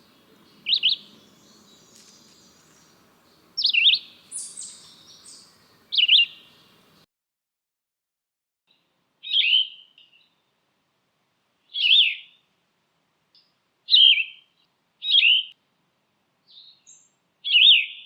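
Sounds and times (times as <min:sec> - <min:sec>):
high bird call: 0:00.0 - 0:07.0.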